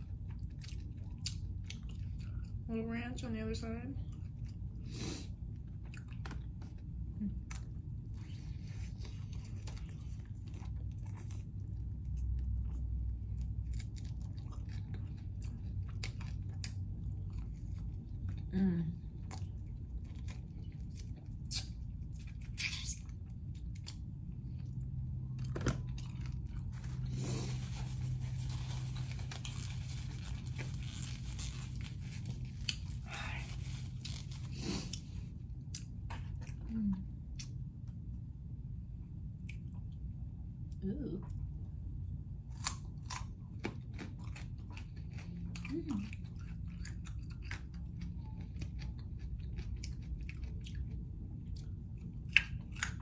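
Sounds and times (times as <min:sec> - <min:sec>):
person chewing and biting: 0:04.1 - 0:18.5, 0:19.2 - 0:36.6, 0:42.5 - 0:53.0
wet mouth clicks and smacks: 0:21.4 - 0:21.7.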